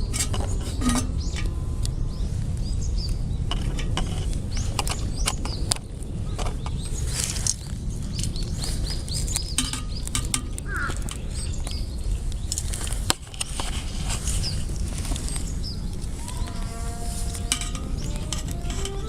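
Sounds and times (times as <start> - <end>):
bird chirping: 0.0 - 5.7, 14.3 - 19.0
low stove rumble: 0.0 - 19.0
wood fire crackling: 6.8 - 19.0.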